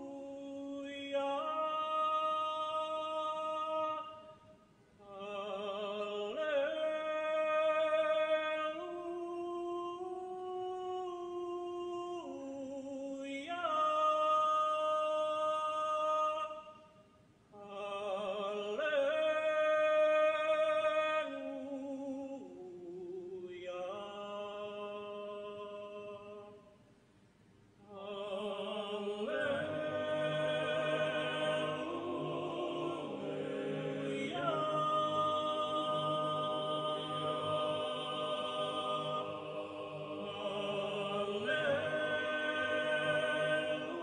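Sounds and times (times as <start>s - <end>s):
choir singing a cappella: 0.0s - 4.4s, 5.0s - 16.8s, 17.6s - 26.5s, 27.9s - 44.0s.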